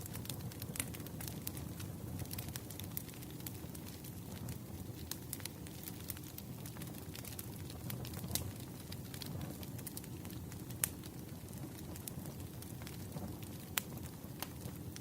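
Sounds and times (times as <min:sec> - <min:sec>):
low rumble of burning logs: 0:00.0 - 0:15.0
pops and snaps of fire: 0:00.0 - 0:15.0
wood fire crackling: 0:00.0 - 0:15.0.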